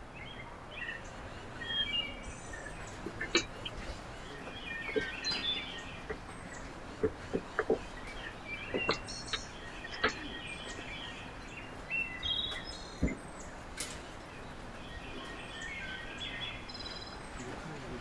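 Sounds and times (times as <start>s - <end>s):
songbirds chirping: 0.0s - 18.0s
sharp taps and clicks: 2.8s - 10.9s.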